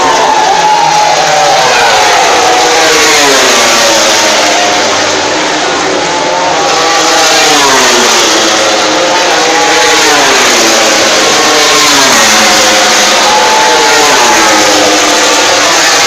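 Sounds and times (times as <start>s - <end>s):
loud steady rushing noise: 0.0s - 16.0s
racing motorcycle engines revving: 0.0s - 16.0s.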